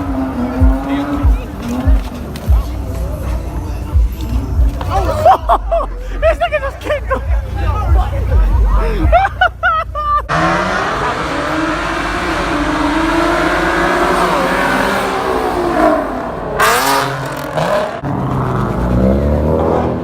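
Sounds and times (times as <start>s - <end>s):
car engine revving: 0.0s - 5.4s, 10.3s - 20.0s.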